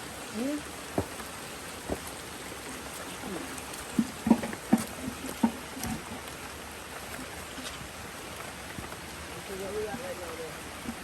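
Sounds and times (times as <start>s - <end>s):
flowing river water: 0.0s - 11.0s
rain: 0.0s - 11.0s
knocks and thumps: 0.9s - 1.2s, 1.8s - 2.2s, 3.9s - 6.2s.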